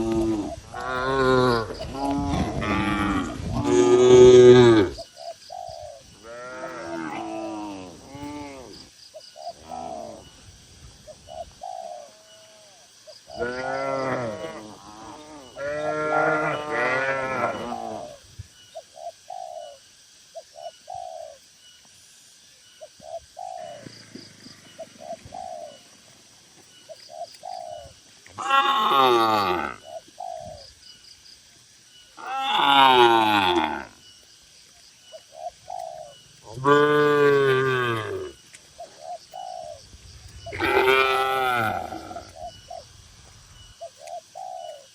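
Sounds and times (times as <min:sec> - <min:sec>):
soft bird calls: 0:22.6 - 0:44.9
cattle mooing: 0:40.5 - 0:42.3.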